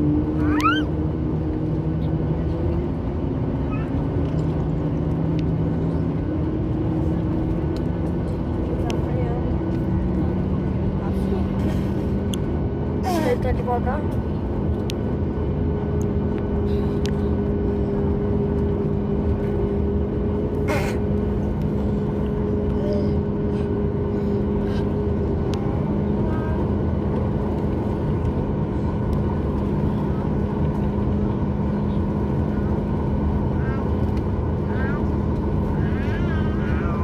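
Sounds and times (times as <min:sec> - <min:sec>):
airplane cabin engine hum: 0:00.0 - 0:37.0.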